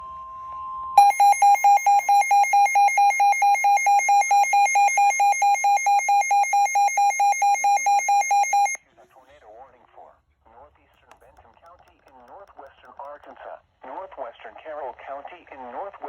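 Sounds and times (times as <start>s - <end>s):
alarm beeping in fast pulse: 1.0s - 8.8s.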